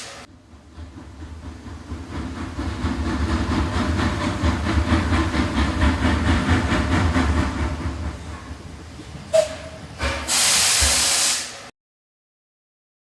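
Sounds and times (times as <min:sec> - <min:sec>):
train rumbling: 0:00.0 - 0:11.7.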